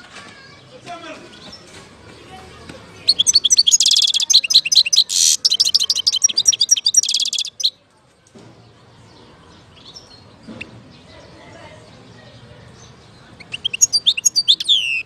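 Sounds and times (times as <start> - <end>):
faint bird chirps: 3.0 - 7.8, 12.2 - 15.0
goldfinch twittering trills: 3.1 - 7.7.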